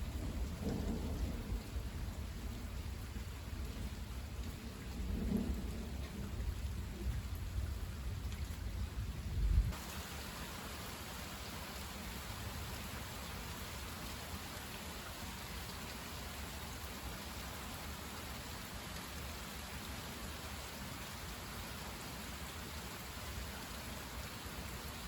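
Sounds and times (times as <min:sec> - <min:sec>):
low thunder rumble: 0:00.0 - 0:09.8
steady rainfall: 0:00.0 - 0:25.0.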